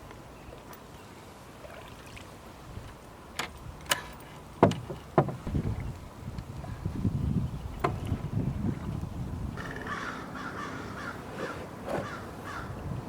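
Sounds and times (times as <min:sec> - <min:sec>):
water washing against canoe: 0:04.4 - 0:09.4
knocks on canoe hull: 0:04.6 - 0:05.8.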